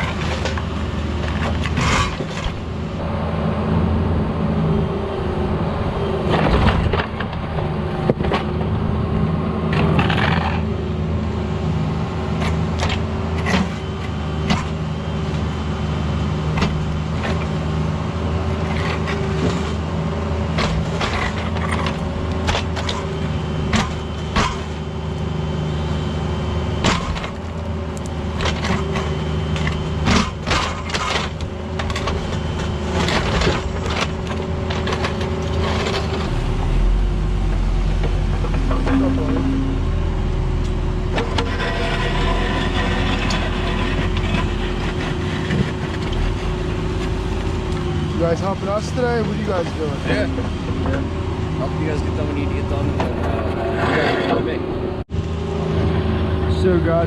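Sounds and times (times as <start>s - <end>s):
excavator diesel engine running: 0.0s - 57.0s
bucket cracking and scraping asphalt: 28.4s - 39.8s, 40.6s - 51.0s.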